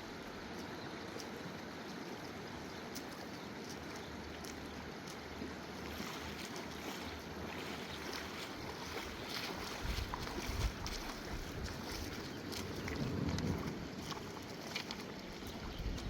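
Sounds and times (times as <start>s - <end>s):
wind buffeting microphone: 8.2s - 16.0s.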